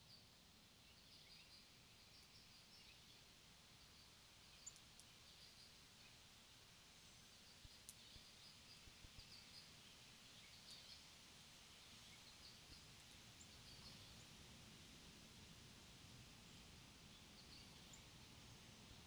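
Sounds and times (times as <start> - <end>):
small birds chirping: 0.9 - 6.2, 7.0 - 14.4, 16.5 - 18.2
soft ticks: 4.7 - 5.4, 7.6 - 8.3.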